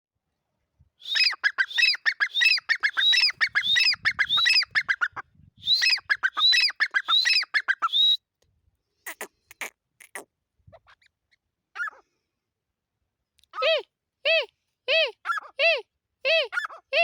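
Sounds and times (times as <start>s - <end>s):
francolin calling: 1.0s - 5.1s, 5.7s - 8.2s.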